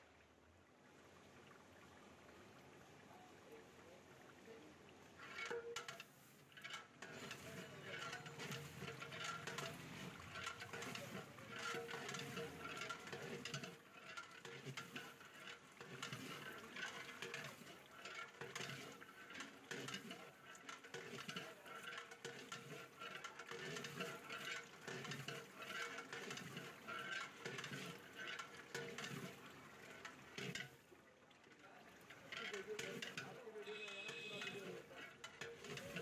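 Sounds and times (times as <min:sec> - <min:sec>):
metal ladle scraping pot: 0:05.2 - 0:30.8, 0:32.0 - 0:36.0
food sizzling in oil: 0:05.3 - 0:20.1.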